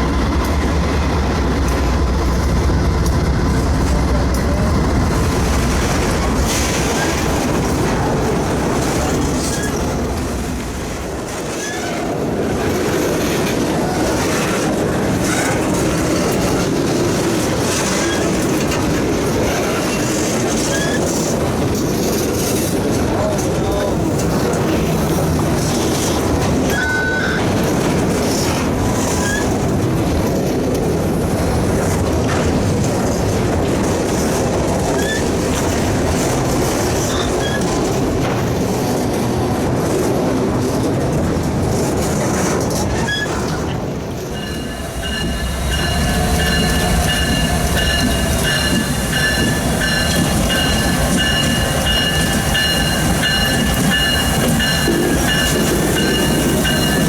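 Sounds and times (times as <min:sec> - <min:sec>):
train wheels rumbling on rails: 0:00.0 - 0:57.0
high wheel squeal: 0:26.7 - 0:27.4, 0:44.3 - 0:57.0.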